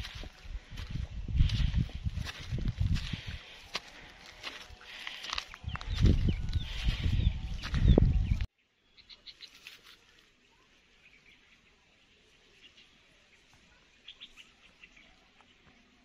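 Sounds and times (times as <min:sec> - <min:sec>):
faint bird chirps: 0:05.6 - 0:16.0.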